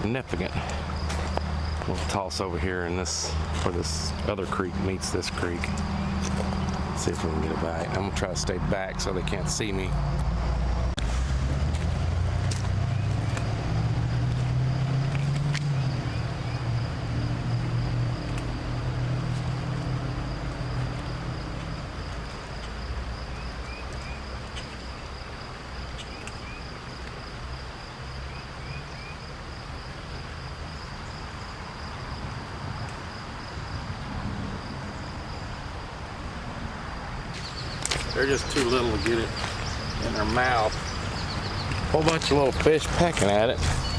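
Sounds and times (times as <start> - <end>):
vehicle engine rumble passing: 0.0 - 26.0, 33.4 - 43.9
insect trilling: 12.8 - 26.9, 37.4 - 43.9.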